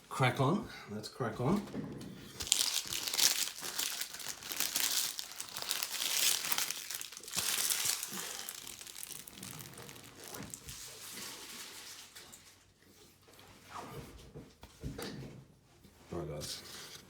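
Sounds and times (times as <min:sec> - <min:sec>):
foil wrapper crinkling: 0:02.4 - 0:12.5.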